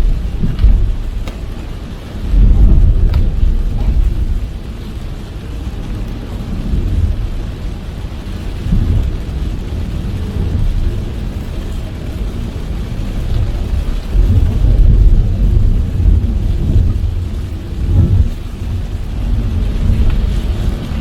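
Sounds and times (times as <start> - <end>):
heavy rain beating on a car: 0.0 - 21.0
tyres rumbling on wet road: 0.0 - 21.0.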